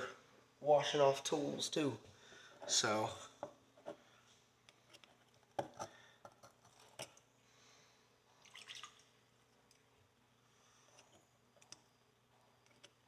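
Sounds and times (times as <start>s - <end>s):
water drips and splashes: 8.4s - 9.1s.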